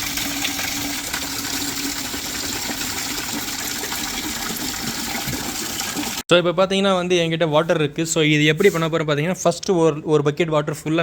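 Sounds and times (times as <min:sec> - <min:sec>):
water running into bucket: 0:00.0 - 0:06.2.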